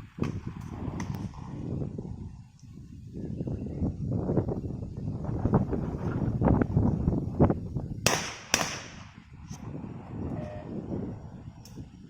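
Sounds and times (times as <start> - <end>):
wind buffeting microphone: 0.0 - 12.0
shotgun shot echo: 8.1 - 9.2.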